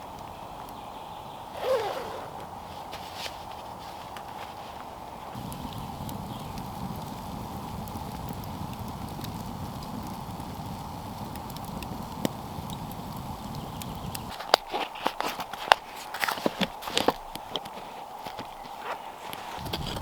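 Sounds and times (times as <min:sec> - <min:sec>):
campfire crackling and popping: 0:05.1 - 0:20.0
steady low rumble: 0:05.4 - 0:14.3.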